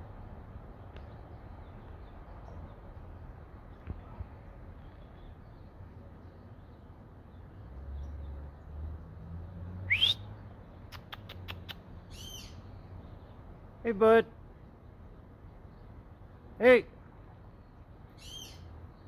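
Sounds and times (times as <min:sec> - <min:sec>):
loud bird call rising in pitch: 0:09.9 - 0:10.2.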